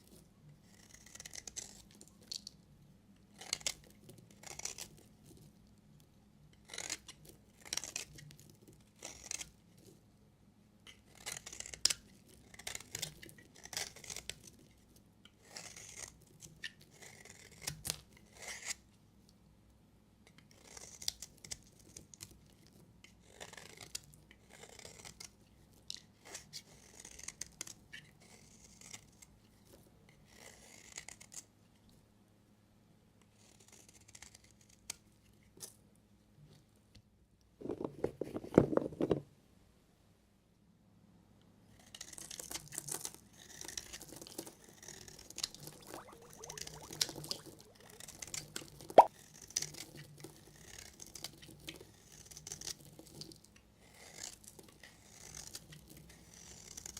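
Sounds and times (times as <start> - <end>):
knife cutting soap: 0.0 - 2.6, 3.2 - 10.0, 10.9 - 18.9, 20.2 - 31.5, 33.2 - 35.8, 41.7 - 56.9.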